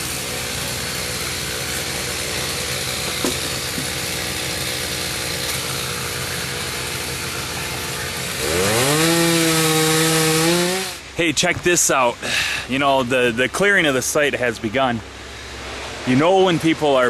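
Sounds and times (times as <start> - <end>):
chainsaw engine revving: 0.0 - 11.2.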